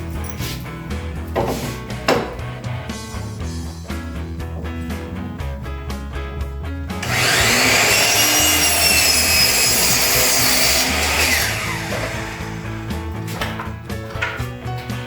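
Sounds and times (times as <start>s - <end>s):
power saw cutting wood: 7.0s - 13.4s.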